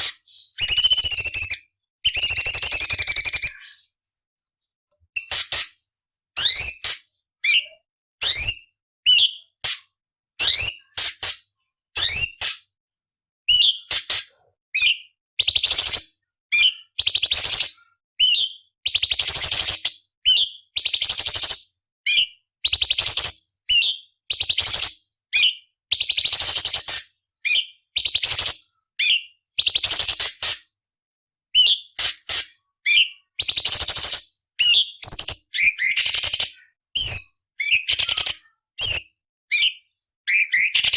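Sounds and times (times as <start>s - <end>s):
bird singing whistled notes: 0.3s - 4.0s, 6.4s - 9.6s, 10.4s - 11.0s, 12.0s - 12.6s, 13.5s - 13.9s, 14.7s - 30.3s, 31.5s - 32.0s, 32.8s - 40.9s.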